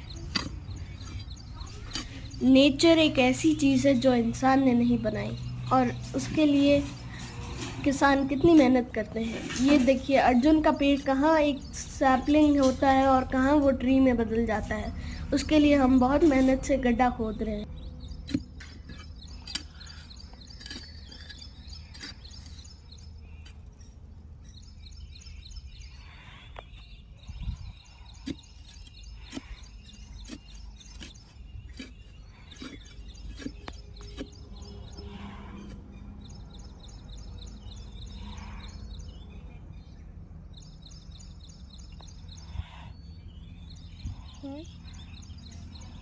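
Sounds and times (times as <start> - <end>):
small birds chirping: 0.0 - 46.0
spade digging into soil: 18.2 - 22.8, 28.2 - 35.8.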